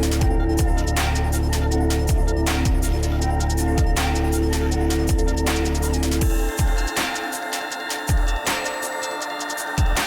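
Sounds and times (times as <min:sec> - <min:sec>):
dubstep music with heavy bass: 0:00.0 - 0:10.0.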